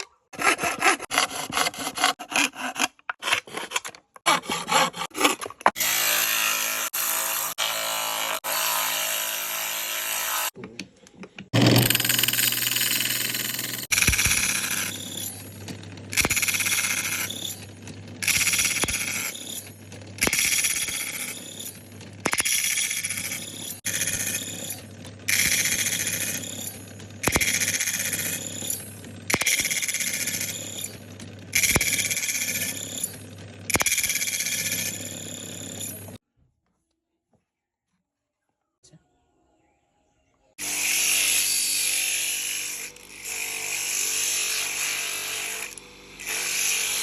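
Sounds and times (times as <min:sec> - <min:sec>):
power tool cutting horn: 0:04.7 - 0:10.6, 0:11.6 - 0:36.2, 0:40.6 - 0:47.0.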